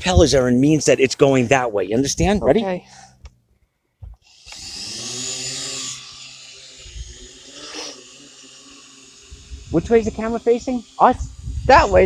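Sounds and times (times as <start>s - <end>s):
drone propellers whining: 4.2s - 12.0s.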